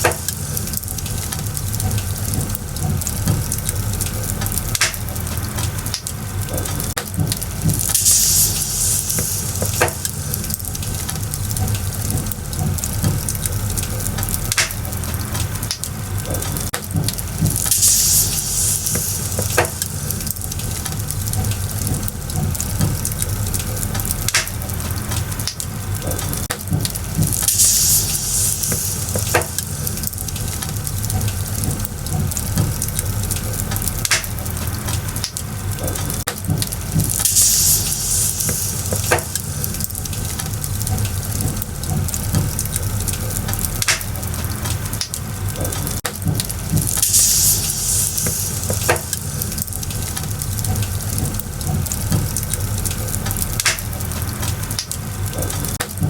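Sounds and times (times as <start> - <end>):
firewood crackling and popping: 0.0 - 56.0
hissing rush: 7.9 - 11.1, 17.6 - 20.4, 27.4 - 30.4, 36.8 - 39.9, 46.9 - 49.7.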